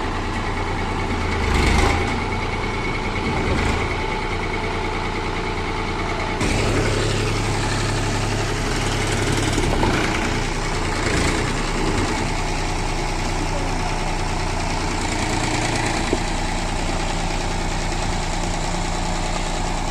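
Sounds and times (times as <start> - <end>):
tractor engine idling: 0.0 - 19.9.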